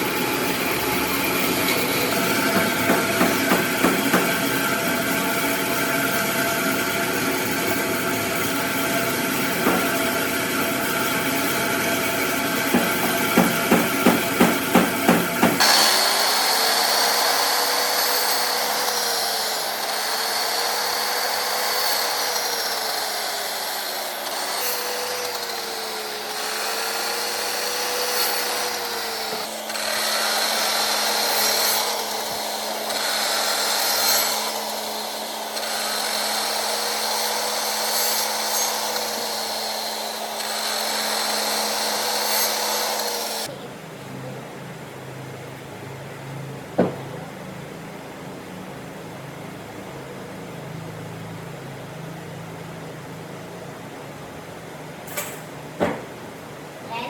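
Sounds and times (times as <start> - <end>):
power tool cutting wood: 0.0 - 43.5.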